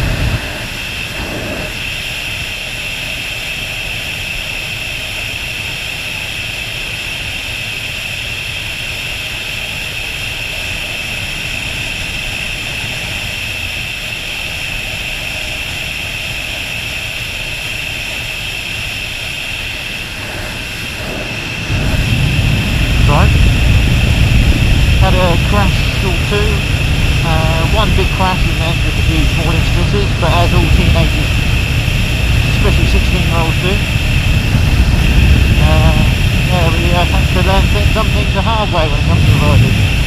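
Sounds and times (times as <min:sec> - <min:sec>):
wind rushing: 0:00.0 - 0:02.1, 0:19.6 - 0:40.0
motorcycle engine: 0:19.7 - 0:40.0.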